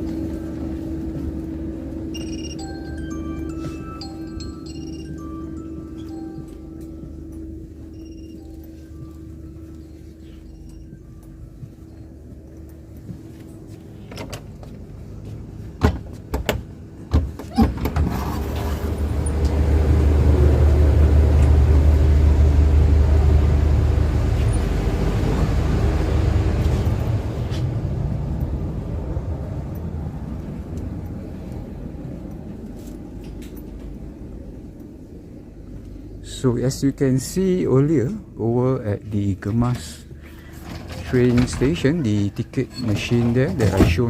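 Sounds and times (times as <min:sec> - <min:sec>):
train wheels rumbling: 0:00.0 - 0:44.0.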